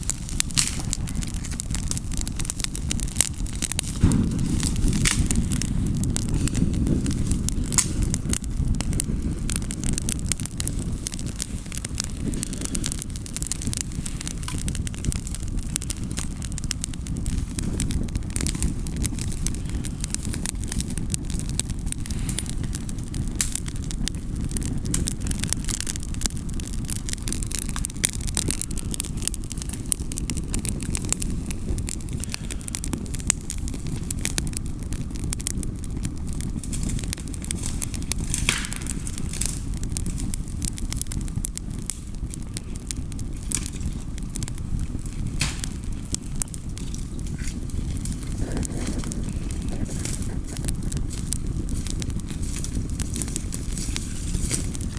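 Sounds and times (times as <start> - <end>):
low rumble: 0.0 - 27.3
campfire crackling and popping: 0.0 - 54.9.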